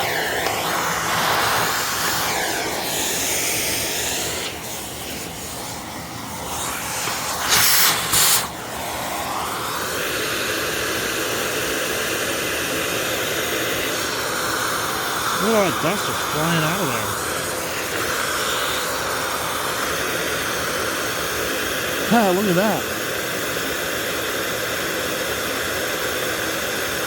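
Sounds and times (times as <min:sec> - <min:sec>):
air jet hissing: 0:00.0 - 0:09.5.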